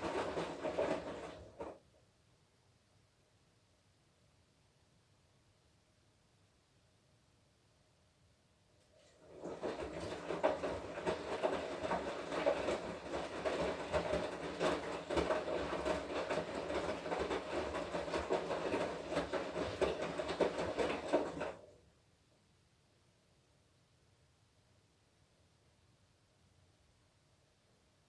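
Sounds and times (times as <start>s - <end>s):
washing machine motor hum: 0.0s - 1.8s, 9.0s - 21.9s
wet laundry tumbling and knocking: 0.0s - 1.8s, 9.2s - 21.7s.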